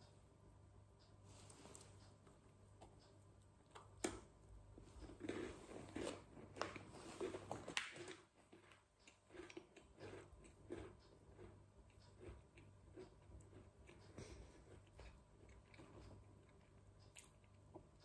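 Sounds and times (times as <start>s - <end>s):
biscuit crunching chewing: 4.9s - 18.0s.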